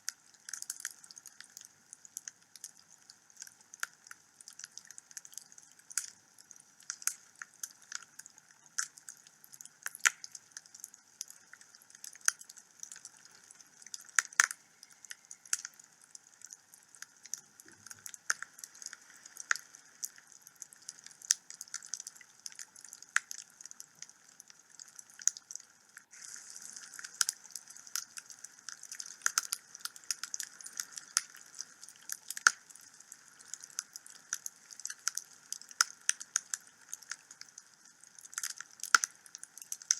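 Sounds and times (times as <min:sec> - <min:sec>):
wood fire crackling: 0:00.3 - 0:39.9
fire hiss: 0:26.1 - 0:29.1.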